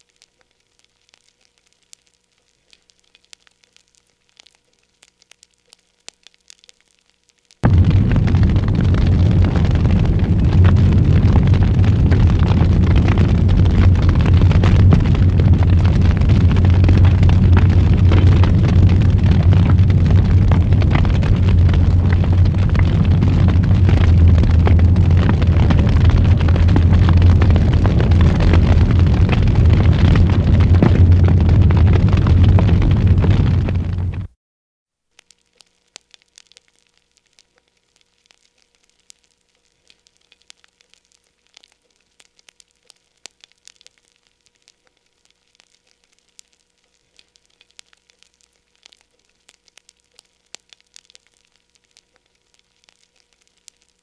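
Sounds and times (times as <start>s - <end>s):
fire crackling and popping: 0.0s - 34.4s, 35.1s - 54.0s
fire rumbling: 7.6s - 34.4s.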